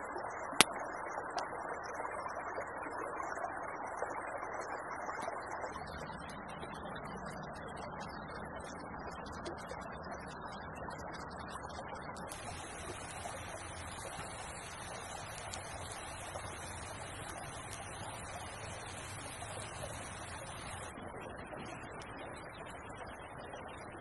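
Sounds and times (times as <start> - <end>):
creek water rushing: 12.3 - 20.9.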